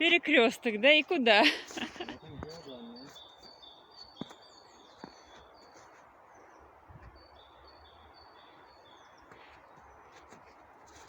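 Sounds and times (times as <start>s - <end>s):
faint background noise: 0.0s - 11.0s
small songbird singing: 2.0s - 10.0s.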